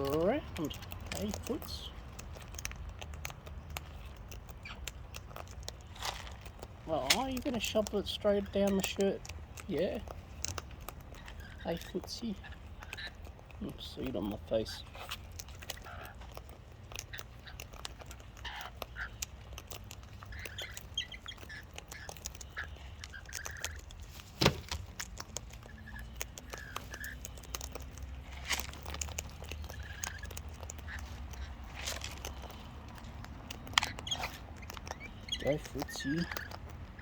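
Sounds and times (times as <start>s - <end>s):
beak clicking on seed: 0.0s - 37.0s
bird chirps: 20.2s - 23.8s, 33.5s - 37.0s.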